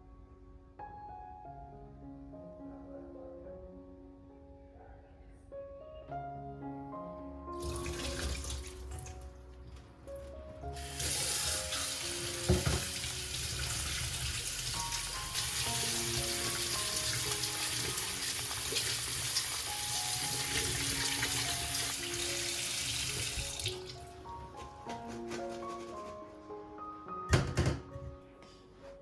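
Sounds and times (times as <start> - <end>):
tap water running into sink: 7.6 - 9.3, 10.8 - 24.1.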